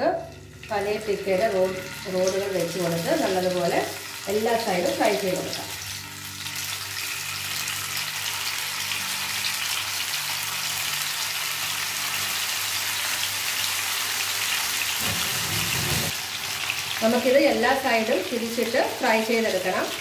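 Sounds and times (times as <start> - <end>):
hot oil sizzling: 0.0 - 20.0.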